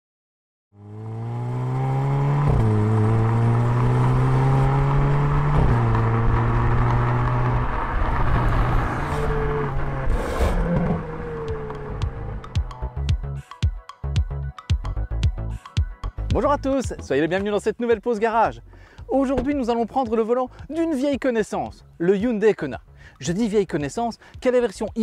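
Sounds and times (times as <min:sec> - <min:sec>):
car engine accelerating hard: 0:00.8 - 0:12.9.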